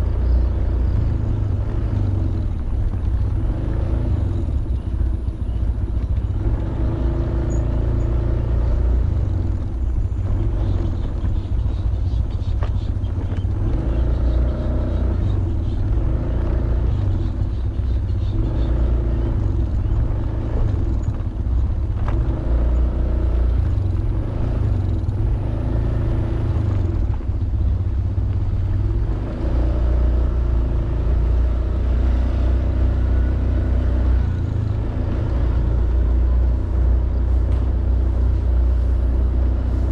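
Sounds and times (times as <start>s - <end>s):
scooter engine running: 0.0s - 39.9s.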